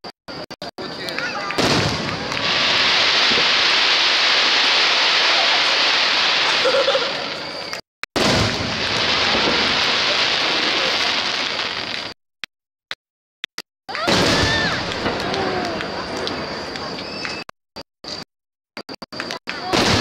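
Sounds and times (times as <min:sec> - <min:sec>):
crackling hiss of fireworks: 0:00.3 - 0:12.2, 0:13.9 - 0:18.2, 0:18.8 - 0:20.0
firework shells bursting: 0:00.7 - 0:12.2, 0:13.9 - 0:17.4.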